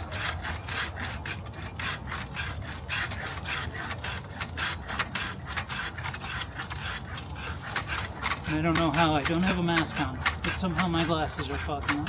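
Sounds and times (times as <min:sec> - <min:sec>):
hand saw cutting branch: 0:00.0 - 0:12.0.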